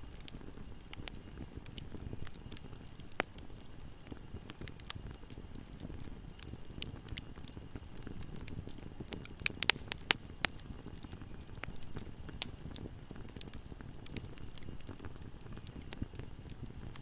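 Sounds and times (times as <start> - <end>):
bonfire crackling and popping: 0.0 - 17.0.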